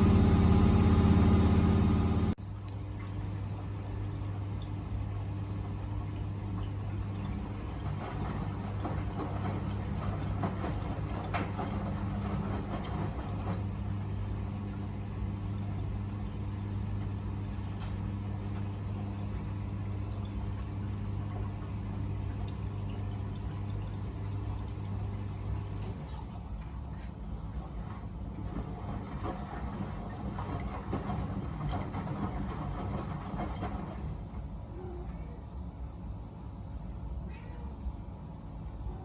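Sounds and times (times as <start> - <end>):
washing machine motor hum: 0.0 - 2.4, 5.5 - 37.1.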